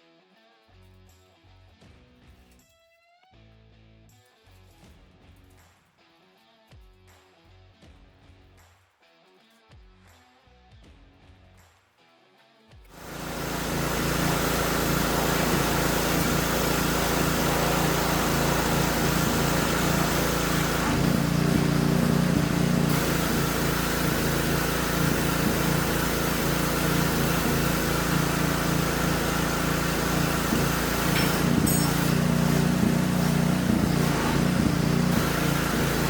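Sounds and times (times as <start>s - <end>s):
motor humming: 13.0s - 36.0s.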